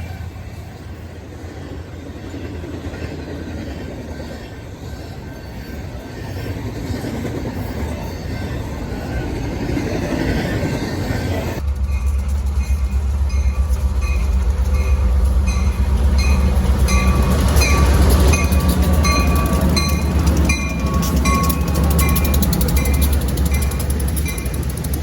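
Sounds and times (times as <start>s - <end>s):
train rumbling past: 0.0s - 25.0s
crossing bell dinging: 4.5s - 25.0s
train wheel clicks: 11.6s - 25.0s.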